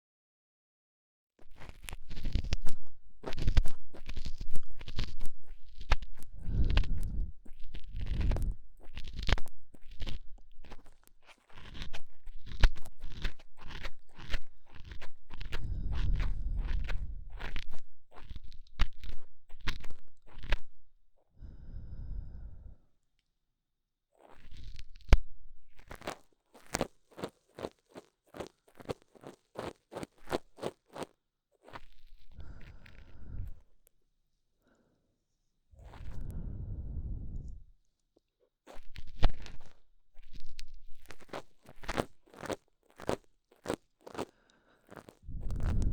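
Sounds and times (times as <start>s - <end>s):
rustling rub on microphone: 1.4s - 20.7s, 45.2s - 45.9s
ear cleaning tool scratching: 1.5s - 20.6s.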